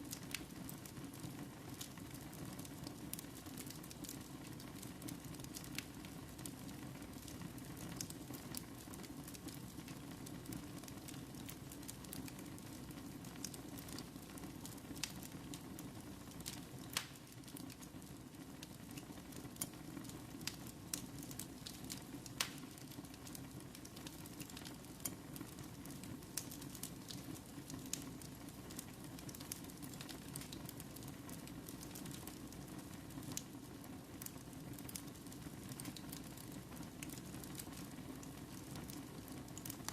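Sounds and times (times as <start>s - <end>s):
crackles and pops of fire: 0.0s - 39.9s
fire burning in fireplace: 0.0s - 39.9s.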